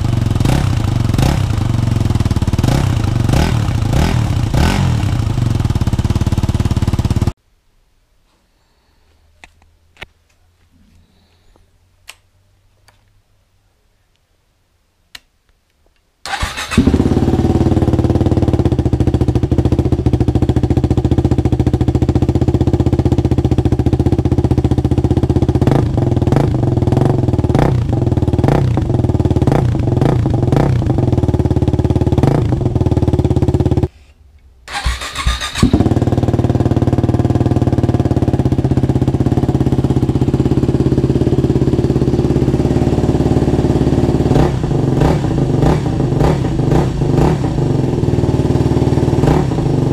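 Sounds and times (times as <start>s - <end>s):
motorcycle engine idling with throttle blips: 34.7s - 49.9s.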